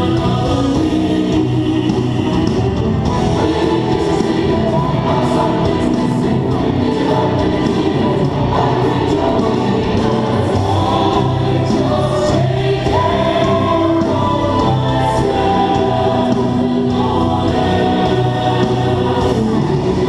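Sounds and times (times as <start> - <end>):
choir singing held chords: 0.0 - 20.0.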